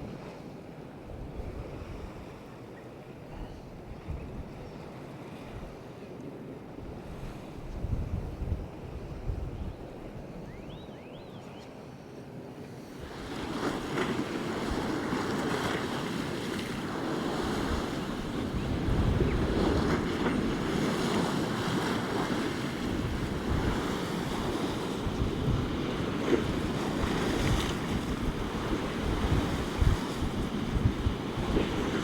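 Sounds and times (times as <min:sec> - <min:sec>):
wind buffeting microphone: 0:01.1 - 0:02.4, 0:03.3 - 0:04.8, 0:06.8 - 0:10.8, 0:13.0 - 0:32.0
surf breaking on shore: 0:12.9 - 0:32.0.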